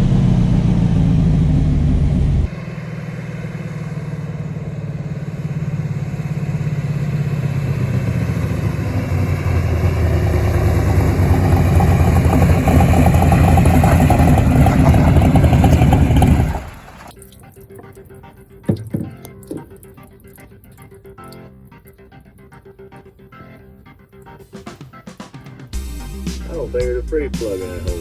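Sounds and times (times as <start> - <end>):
drag car engine running: 0.0 - 17.1.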